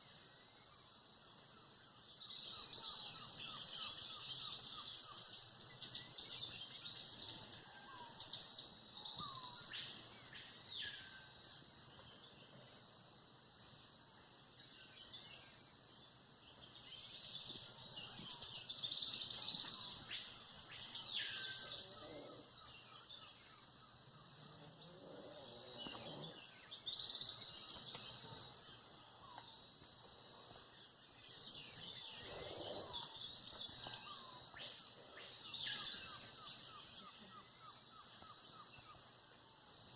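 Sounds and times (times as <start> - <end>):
birds chirping and calling: 17.1 - 22.4, 31.4 - 37.4.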